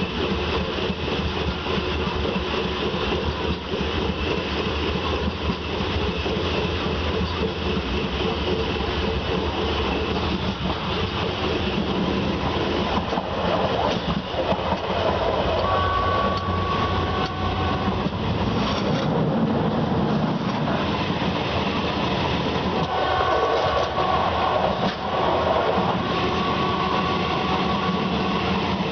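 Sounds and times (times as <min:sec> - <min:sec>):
wheels clickety-clack: 0:00.0 - 0:26.0
train rumbling on rails: 0:00.0 - 0:28.9
high-pitched tones: 0:15.6 - 0:18.0.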